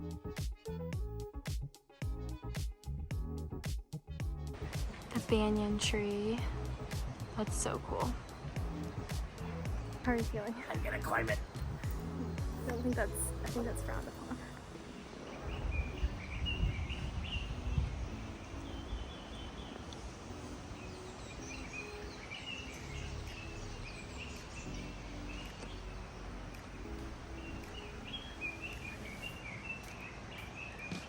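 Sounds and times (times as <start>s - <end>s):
low rumbling thumps: 4.2s - 14.3s
outdoor background hiss: 4.5s - 31.0s
small birds chirping: 4.6s - 31.0s.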